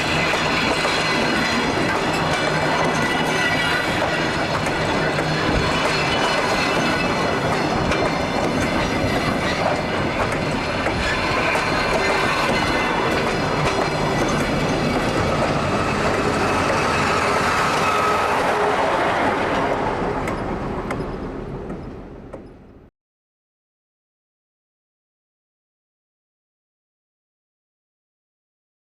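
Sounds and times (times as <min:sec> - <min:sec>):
train wheels clacking over rail joints: 0:00.0 - 0:22.6
train wheel squeal: 0:00.0 - 0:22.7.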